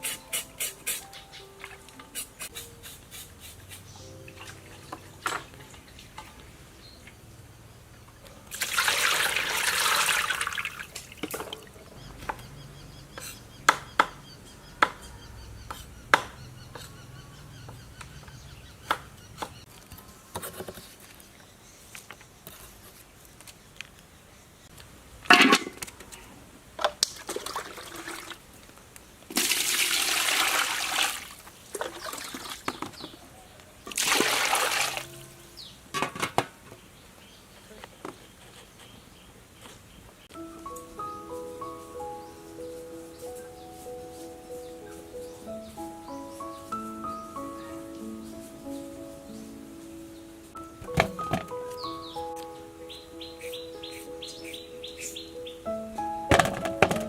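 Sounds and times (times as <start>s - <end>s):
water pouring: 8.5s - 11.7s, 27.0s - 28.4s, 29.3s - 32.9s, 33.9s - 35.2s
handling clicks and knocks: 50.8s - 51.8s, 56.3s - 57.0s.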